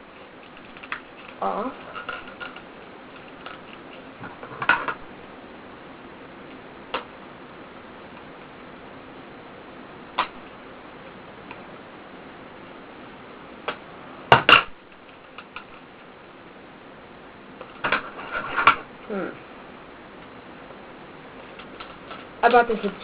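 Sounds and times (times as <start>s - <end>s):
low steady hiss: 0.0s - 23.0s.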